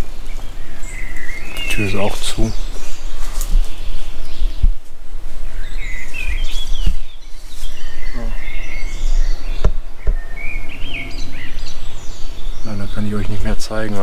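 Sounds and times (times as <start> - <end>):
songbirds chirping: 0.0 - 14.0
low steady rumble: 8.3 - 14.0.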